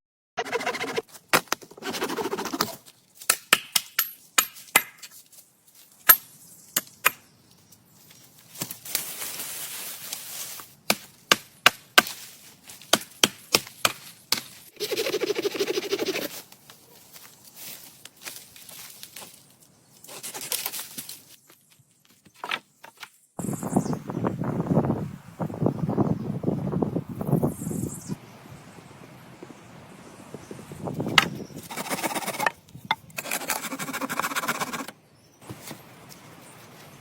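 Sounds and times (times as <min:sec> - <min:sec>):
wood being chopped: 0:01.3 - 0:01.6, 0:02.6 - 0:05.1, 0:10.9 - 0:12.2, 0:12.9 - 0:14.5.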